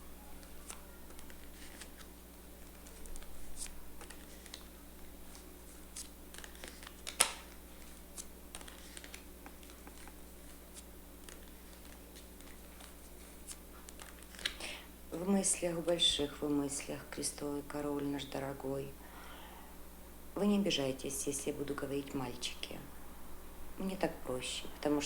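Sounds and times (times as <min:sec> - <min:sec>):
card snap: 0:05.9 - 0:07.6.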